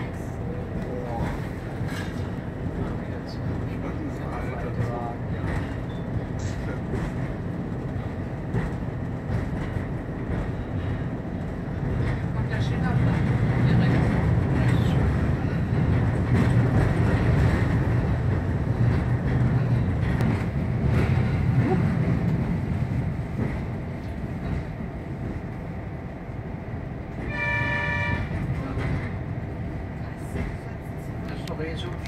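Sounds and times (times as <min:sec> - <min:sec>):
railcar engine rumble: 0:00.0 - 0:32.0
train horn blast: 0:27.2 - 0:28.5.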